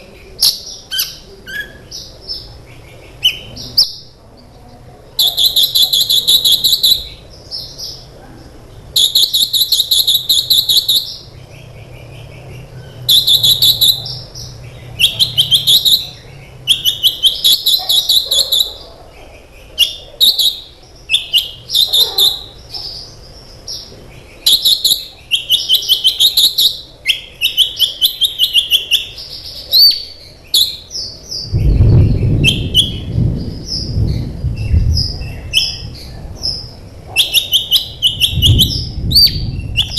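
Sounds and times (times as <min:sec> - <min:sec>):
sunbird chirping song: 0:00.0 - 0:39.9
low rumble: 0:31.4 - 0:37.1, 0:38.0 - 0:39.9.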